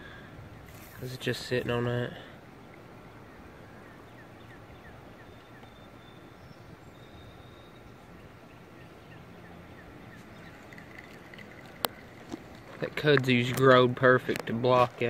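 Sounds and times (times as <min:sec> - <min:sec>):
faint background noise: 0:00.0 - 0:15.0
bird chirping: 0:03.1 - 0:12.1.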